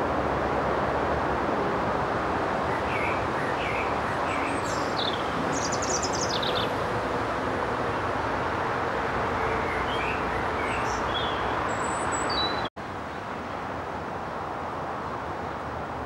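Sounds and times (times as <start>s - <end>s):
small birds chirping and trilling: 2.8s - 6.8s, 9.7s - 12.7s.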